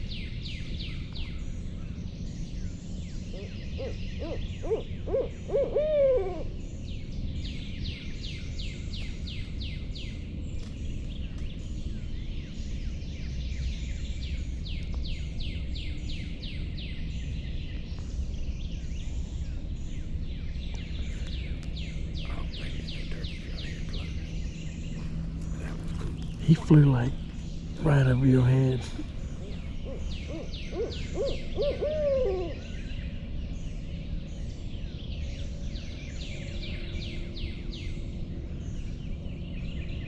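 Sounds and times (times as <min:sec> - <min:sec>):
low steady hum: 0:00.0 - 0:40.0
owl hooting: 0:03.3 - 0:06.6, 0:27.8 - 0:32.9.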